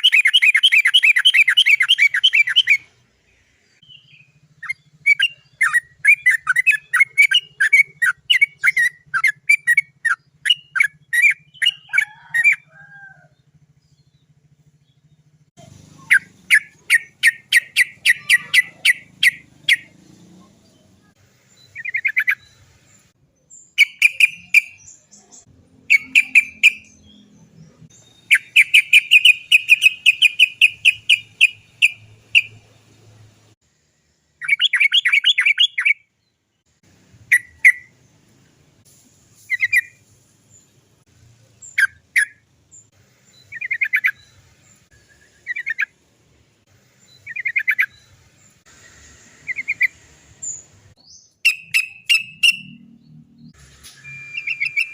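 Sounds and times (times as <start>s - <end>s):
bulbul calling: 0.0s - 2.9s, 3.8s - 13.3s, 14.8s - 20.0s, 23.7s - 32.8s, 34.4s - 36.1s, 43.3s - 46.0s, 47.1s - 48.2s, 49.4s - 53.5s, 54.1s - 54.9s.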